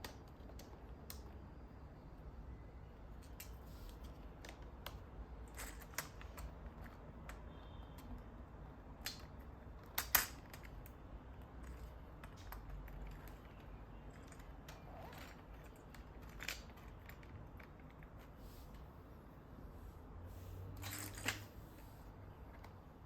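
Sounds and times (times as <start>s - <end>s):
plastic parts clicking and tapping: 8.9s - 18.2s.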